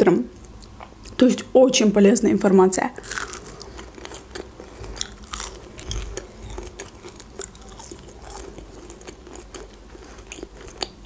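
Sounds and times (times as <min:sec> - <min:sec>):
crunchy chewing: 0:03.0 - 0:11.0.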